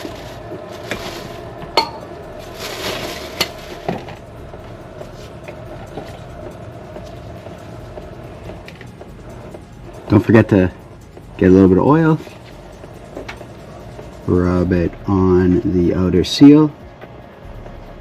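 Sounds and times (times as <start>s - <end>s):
rustling: 0.0s - 4.2s.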